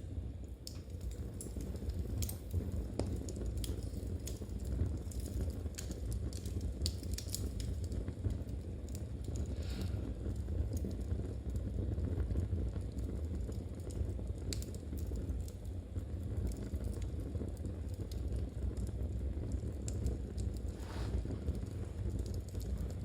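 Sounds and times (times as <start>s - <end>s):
fire crackling: 0.0s - 23.0s
low fire rumble: 0.0s - 23.0s
soft rustle: 20.7s - 21.9s.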